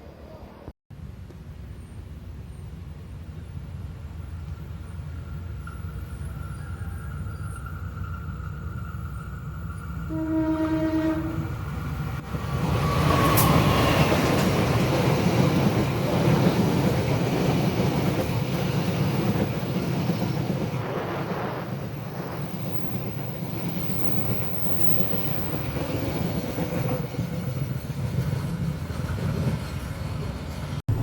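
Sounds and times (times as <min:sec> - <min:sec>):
passenger train passing: 0:02.0 - 0:31.0
diesel locomotive horn: 0:10.1 - 0:14.3.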